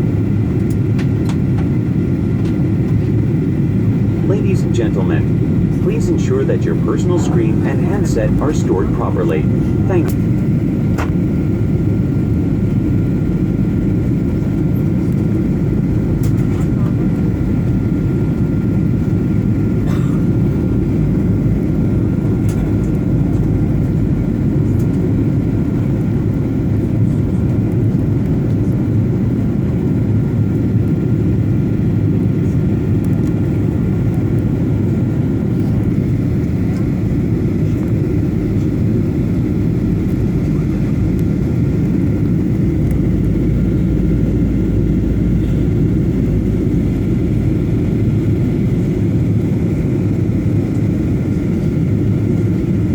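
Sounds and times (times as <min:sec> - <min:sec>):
airliner cabin roar: 0:00.0 - 0:52.9.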